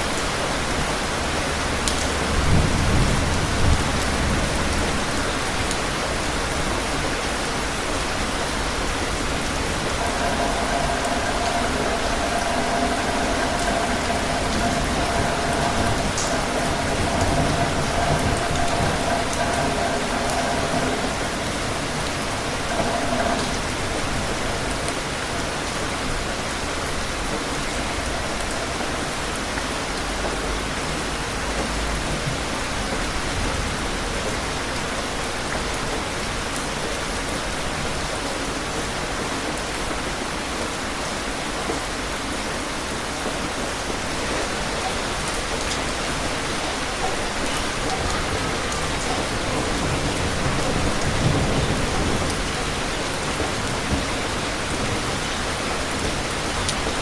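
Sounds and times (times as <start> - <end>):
heavy rain patter: 0.0 - 57.0
faint steady tone: 9.1 - 26.4.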